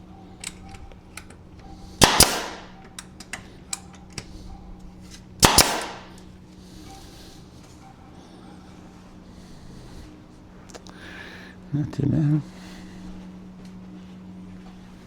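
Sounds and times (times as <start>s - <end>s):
nail gun firing into wood: 2.0s - 2.8s, 5.4s - 6.2s.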